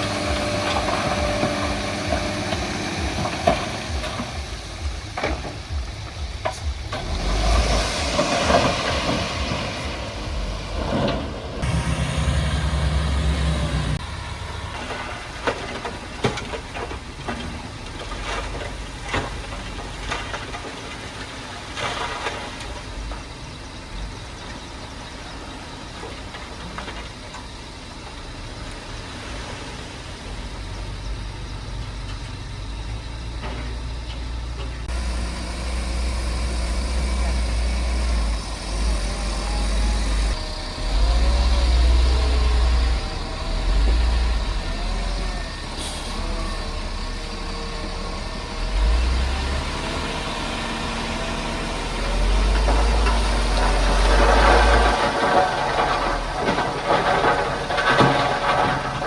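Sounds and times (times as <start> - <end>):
knocks and clanks: 0.0 - 14.1, 14.7 - 23.3, 51.8 - 59.0
diesel engines running: 0.0 - 59.0.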